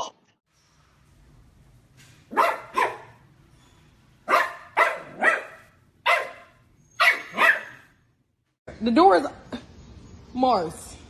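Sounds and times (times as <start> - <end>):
dog barking: 2.3 - 3.2, 4.2 - 7.9.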